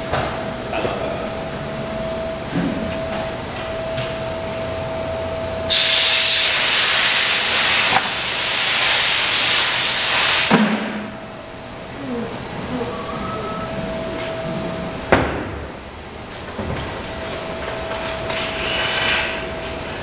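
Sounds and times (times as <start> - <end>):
high-pitched hum: 0.0 - 8.6, 11.0 - 20.0
loud rushing hiss: 5.7 - 10.6.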